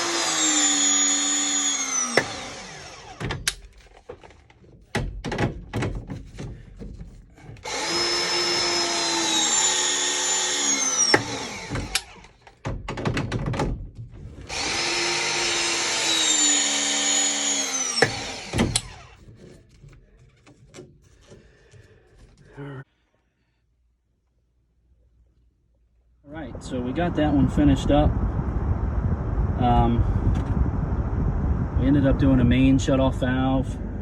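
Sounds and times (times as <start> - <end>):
press tool motor running: 0.0 - 3.3, 7.6 - 12.4, 14.5 - 19.2
knocks and clanks of handling: 3.2 - 7.8, 11.1 - 14.5, 18.0 - 22.6.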